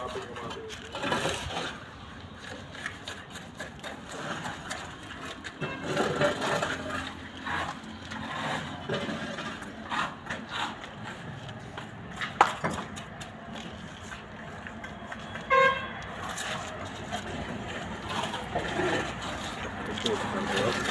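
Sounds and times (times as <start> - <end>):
vehicle horn beep: 5.6 - 6.2, 15.2 - 16.1.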